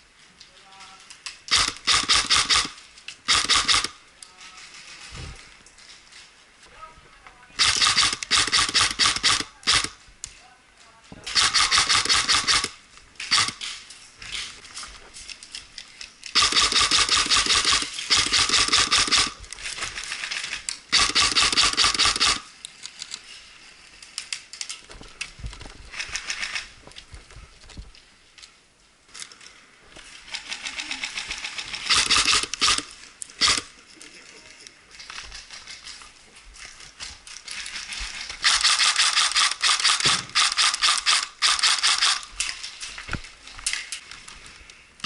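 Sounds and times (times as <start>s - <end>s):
airsoft gun shots: 3.3s - 4.0s, 11.3s - 13.6s, 38.4s - 42.2s.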